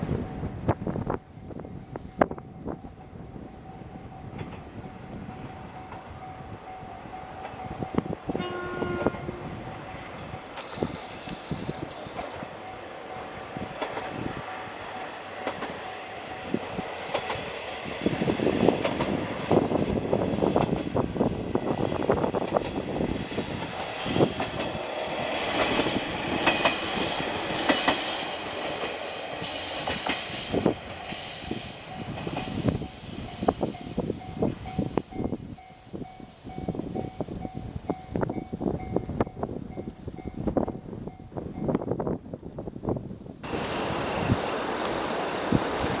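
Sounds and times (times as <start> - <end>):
wheels clacking over rail joints: 7.4 - 12.9, 13.7 - 17.9, 21.7 - 35.9
harsh high hissing noise: 10.6 - 12.3, 25.0 - 34.2.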